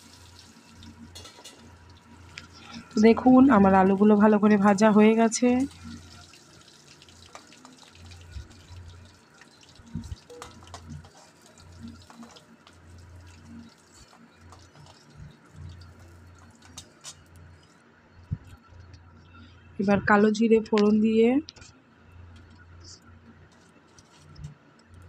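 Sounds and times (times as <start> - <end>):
potato wedges sizzling in oil: 0.0 - 17.6.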